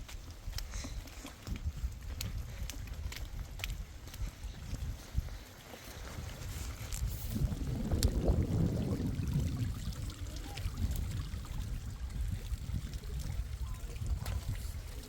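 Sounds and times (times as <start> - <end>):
rainwater running and pouring: 4.6 - 15.0.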